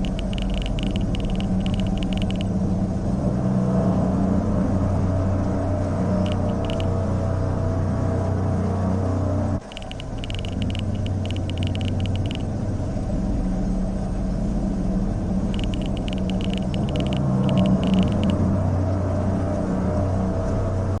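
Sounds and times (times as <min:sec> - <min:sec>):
rapid high-pitched ticks: 0:00.0 - 0:02.6, 0:06.2 - 0:06.9, 0:09.6 - 0:12.6, 0:15.5 - 0:18.4
low rumbling drone: 0:00.0 - 0:21.0.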